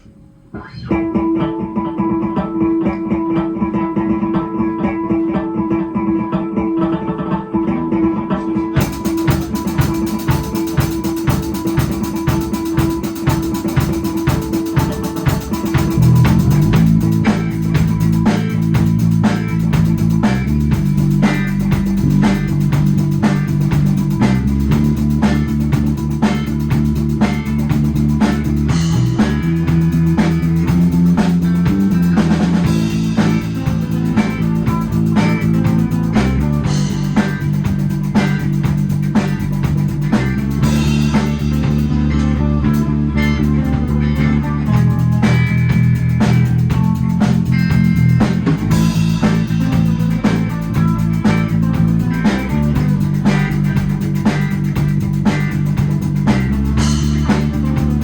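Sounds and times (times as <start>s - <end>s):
rock guitar: 0.0s - 58.0s
drums with cymbals: 8.6s - 58.0s
heavy bass line: 8.8s - 58.0s.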